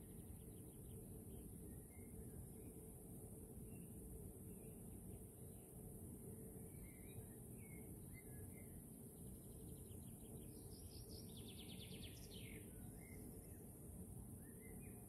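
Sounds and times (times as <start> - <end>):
songbird chirping and trilling: 0.0 - 2.8, 6.6 - 13.6, 14.4 - 15.0.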